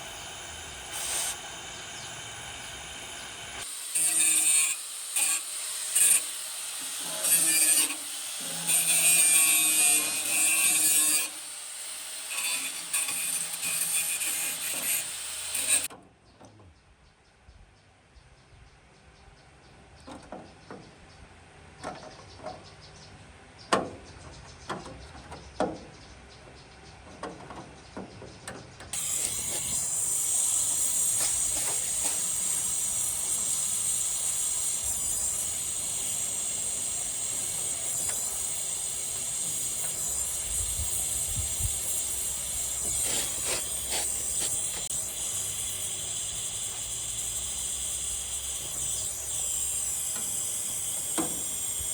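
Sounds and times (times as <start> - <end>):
loud steady hiss: 0.0 - 8.6, 29.0 - 51.9.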